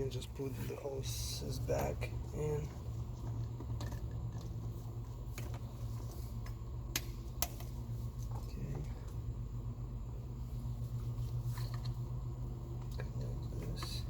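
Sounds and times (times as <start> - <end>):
engine parts clicking and clattering: 0.0 - 9.3, 10.9 - 14.0
steady low hum: 0.0 - 14.0.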